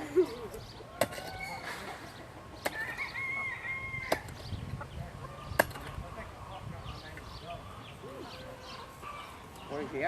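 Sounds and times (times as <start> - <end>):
digging tool striking ground: 1.0 - 1.8, 2.6 - 3.1, 4.0 - 4.5, 5.5 - 6.0
rooster crowing: 1.1 - 1.7, 2.8 - 4.2.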